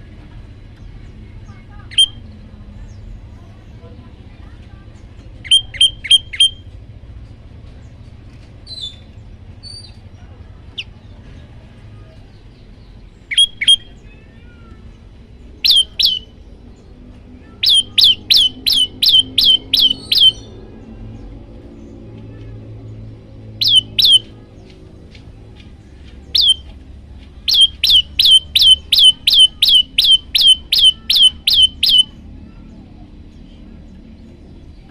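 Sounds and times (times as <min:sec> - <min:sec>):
faint chirps: 0:08.7 - 0:26.8, 0:27.4 - 0:34.9
bird singing sharp notes: 0:13.3 - 0:14.1, 0:15.6 - 0:16.3, 0:17.5 - 0:20.5, 0:23.6 - 0:24.4, 0:26.4 - 0:26.7, 0:27.5 - 0:32.1.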